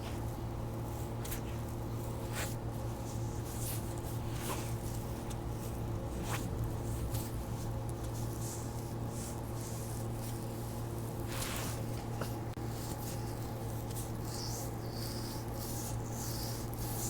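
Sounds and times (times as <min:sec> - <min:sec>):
low steady hum: 0:00.0 - 0:17.0
hands rubbing on a foot: 0:08.0 - 0:17.0.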